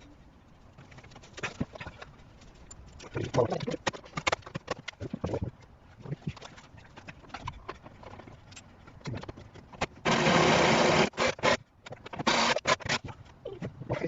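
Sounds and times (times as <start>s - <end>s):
clicks and knocks of hand work: 0.8s - 10.0s
loud power tool running: 10.1s - 11.6s.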